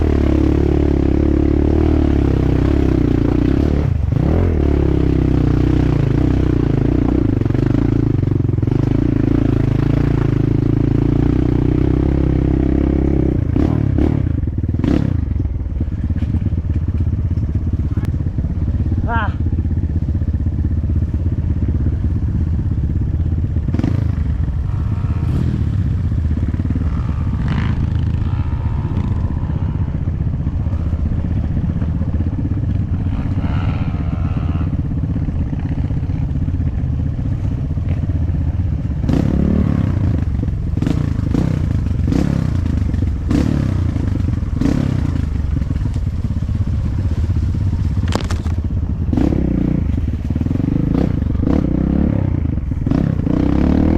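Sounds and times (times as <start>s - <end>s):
dirt bike engine running: 0.0s - 53.9s
bike clattering over rough ground: 45.6s - 48.7s.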